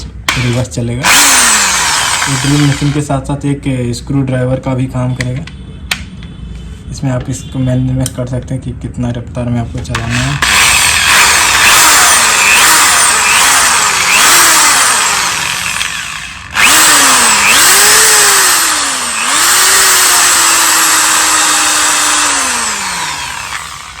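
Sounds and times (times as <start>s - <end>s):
electric drill motor whining: 0.3s - 3.1s, 10.0s - 24.0s.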